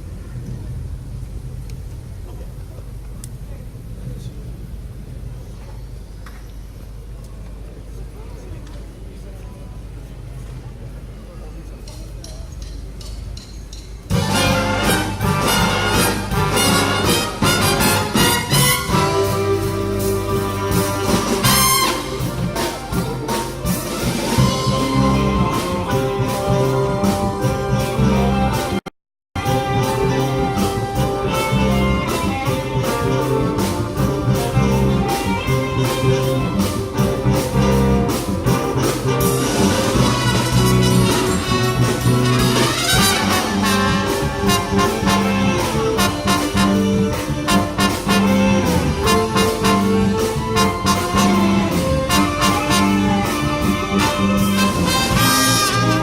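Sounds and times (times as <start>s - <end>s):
big band playing jazz: 11.8s - 56.0s
steady drum beat: 12.8s - 28.8s, 29.4s - 56.0s
rising horn glide: 14.1s - 28.8s, 29.4s - 56.0s.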